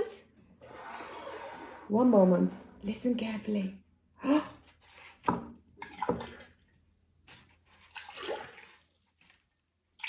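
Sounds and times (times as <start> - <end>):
water poured between cups: 7.8 - 9.0.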